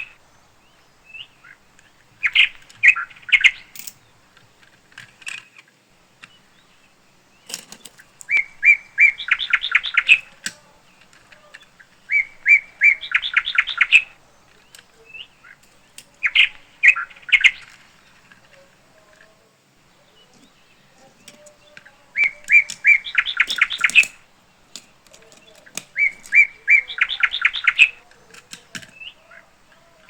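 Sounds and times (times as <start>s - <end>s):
songbird singing: 0.0s - 30.0s
clatter of clicks: 7.4s - 8.4s, 27.7s - 29.1s.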